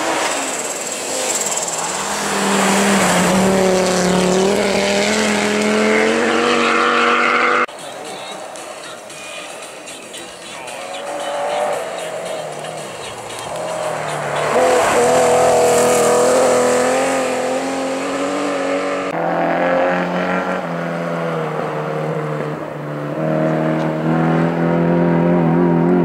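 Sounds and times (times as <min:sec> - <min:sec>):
rally car engines revving high: 0:00.0 - 0:08.6, 0:10.6 - 0:26.0.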